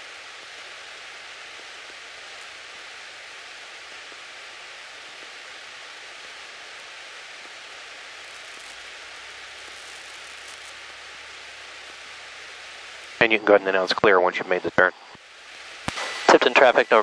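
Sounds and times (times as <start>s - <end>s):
intercom hiss: 13.2s - 15.2s, 15.8s - 17.0s.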